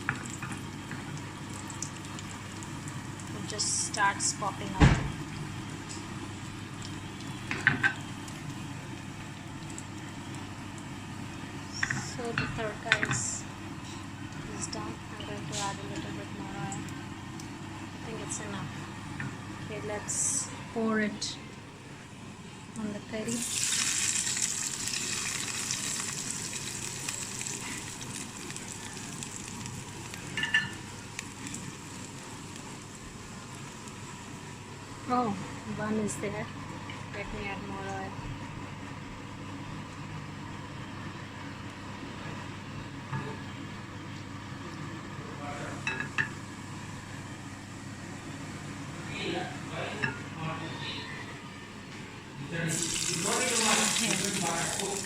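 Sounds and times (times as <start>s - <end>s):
spices sizzling in hot oil: 0.0s - 20.5s, 23.2s - 37.8s, 52.7s - 55.0s
curry leaves popping: 23.4s - 30.4s, 52.7s - 55.0s.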